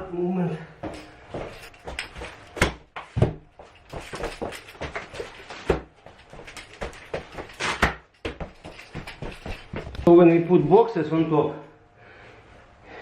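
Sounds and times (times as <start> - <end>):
scuffs on floor: 0.6 - 10.1.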